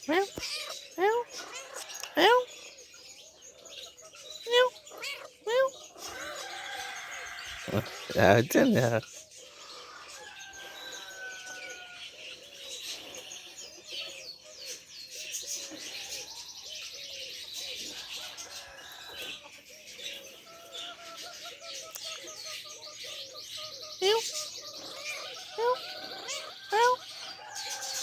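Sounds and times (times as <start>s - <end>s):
small birds chirping: 0.0s - 28.0s
pigeons cooing: 5.1s - 28.0s.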